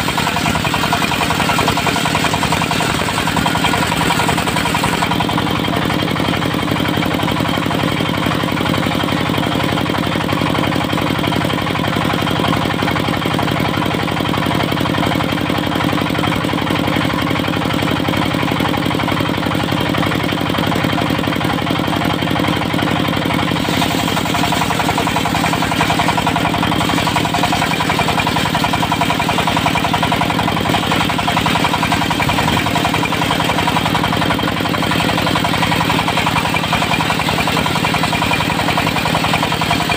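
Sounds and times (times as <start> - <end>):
diesel engine throbbing: 0.0 - 39.9.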